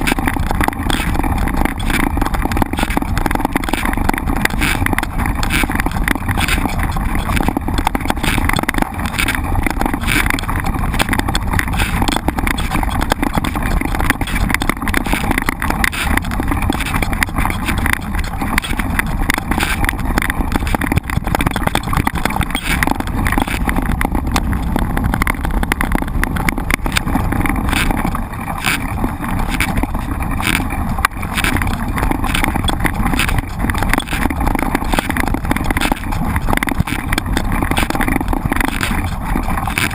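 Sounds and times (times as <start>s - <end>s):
bike rattling over rough trail: 0.0s - 39.9s.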